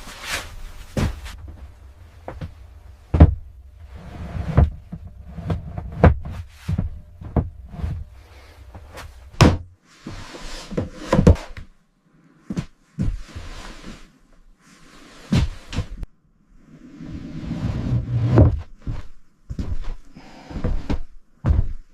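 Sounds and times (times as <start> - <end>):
low steady hum: 0.0 - 10.0
knocks and thuds from building work: 0.9 - 9.8.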